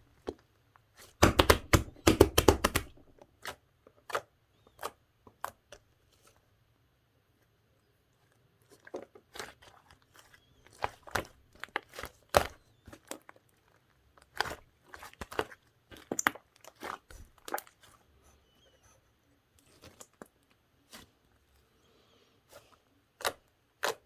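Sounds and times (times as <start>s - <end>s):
slime squeezed by hand: 1.2s - 3.1s.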